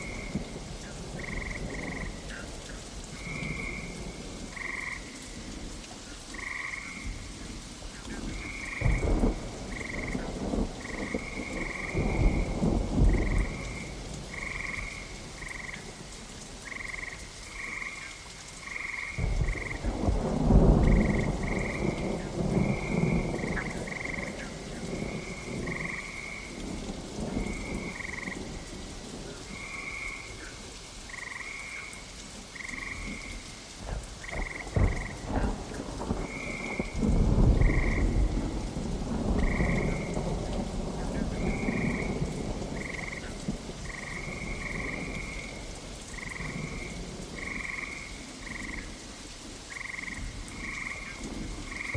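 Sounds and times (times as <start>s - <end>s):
frogs croaking: 0.0s - 51.9s
steady rain: 0.0s - 51.9s
thunder rumbling: 6.3s - 16.1s, 18.8s - 31.2s, 32.5s - 48.9s.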